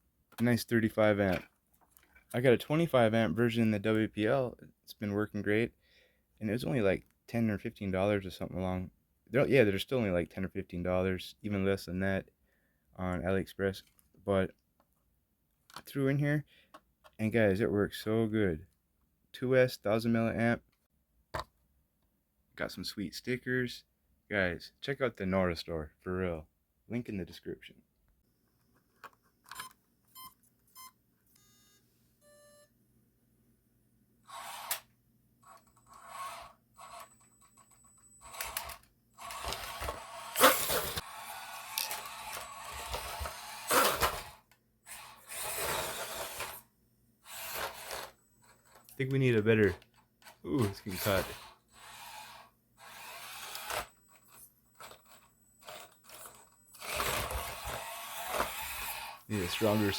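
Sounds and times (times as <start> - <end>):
toy car motor whirring and rattling: 34.2 - 48.9, 49.6 - 59.9.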